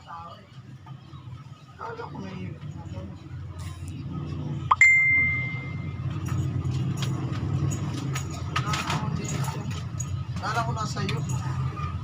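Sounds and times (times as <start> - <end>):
bell-like ding: 4.7 - 6.0.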